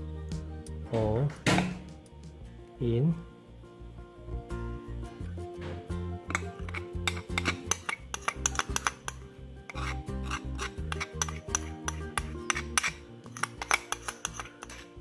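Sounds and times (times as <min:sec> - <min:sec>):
background music with bass line: 0:00.0 - 0:15.0
spoon clinking against bowl: 0:06.3 - 0:15.0.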